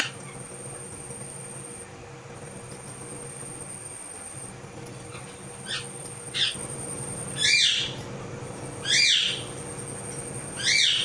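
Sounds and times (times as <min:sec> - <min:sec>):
bird calling: 0:05.0 - 0:06.7, 0:07.3 - 0:08.0, 0:08.8 - 0:09.6, 0:10.5 - 0:11.0.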